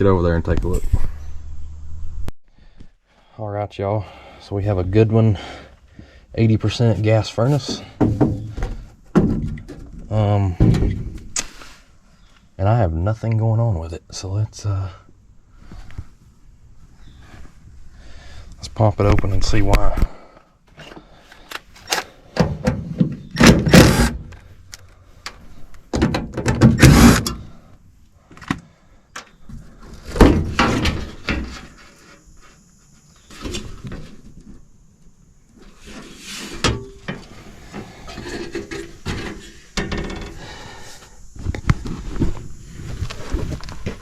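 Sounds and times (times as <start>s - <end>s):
metal panels clunking and scraping: 7.4s - 11.4s, 25.9s - 27.5s, 29.5s - 31.9s, 35.8s - 40.5s.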